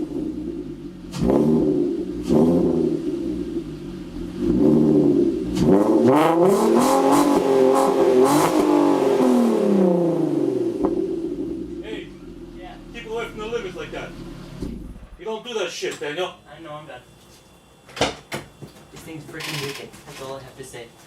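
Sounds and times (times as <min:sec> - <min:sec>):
car engine revving: 0:00.0 - 0:15.2.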